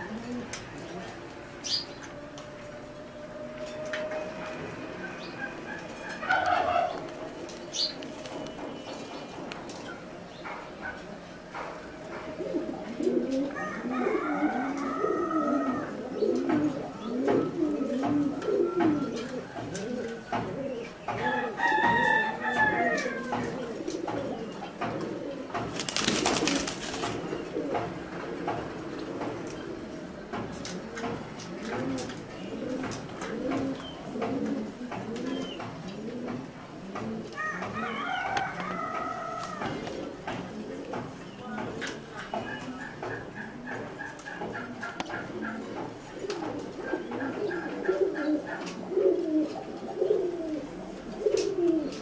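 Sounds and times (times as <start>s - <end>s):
pigeons cooing: 0.0s - 9.0s, 9.7s - 52.0s.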